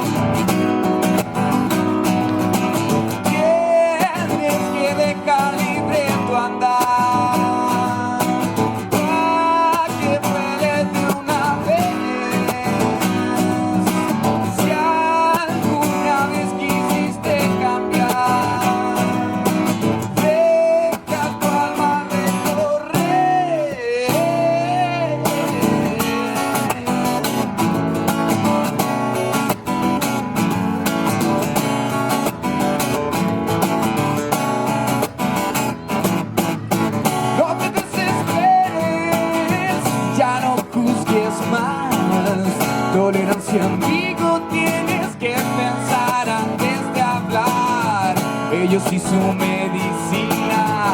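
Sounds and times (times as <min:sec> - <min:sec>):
acoustic guitar strummed: 0:00.0 - 0:50.9
person singing: 0:03.2 - 0:27.6, 0:37.2 - 0:50.9.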